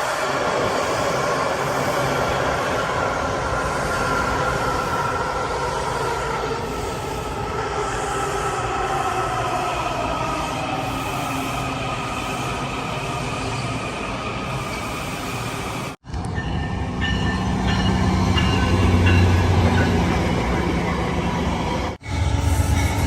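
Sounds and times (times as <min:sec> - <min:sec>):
train rolling past: 0:00.0 - 0:23.0.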